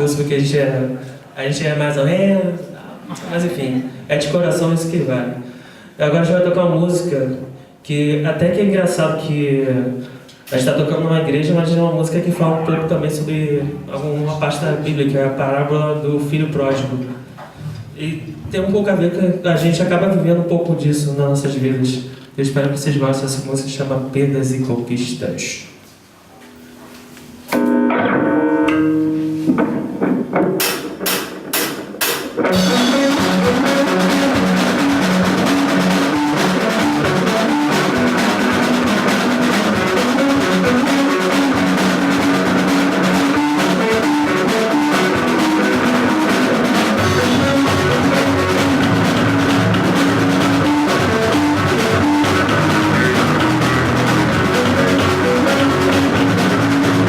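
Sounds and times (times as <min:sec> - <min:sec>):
guitar notes: 0:26.4 - 0:30.7, 0:31.5 - 0:57.0
rock band playing live: 0:27.5 - 0:57.0.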